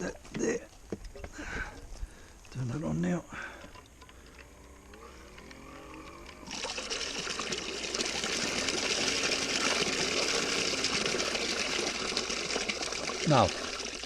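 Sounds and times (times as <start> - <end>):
faint motor hum: 0.1 - 14.0
water gushing from pump: 5.4 - 14.0.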